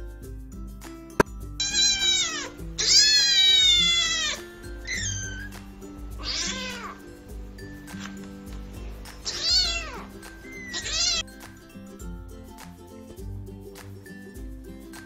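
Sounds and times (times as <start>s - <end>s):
background music: 0.0s - 15.0s
kittens meowing: 1.6s - 11.3s.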